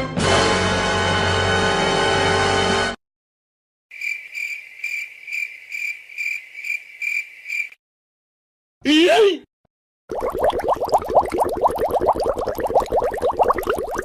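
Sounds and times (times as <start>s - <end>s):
music: 0.0s - 3.0s
crickets chirping: 3.9s - 7.8s.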